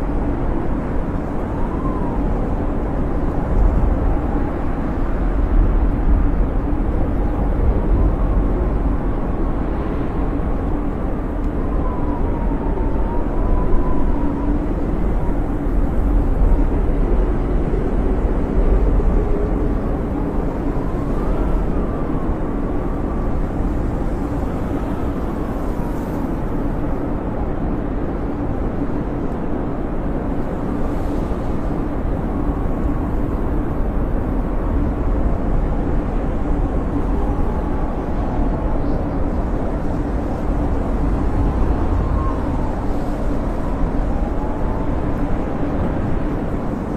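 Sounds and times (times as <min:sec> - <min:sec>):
snowstorm wind with deep rumble: 0:00.0 - 0:46.9
thin whistling howl: 0:11.5 - 0:15.7, 0:40.8 - 0:45.6.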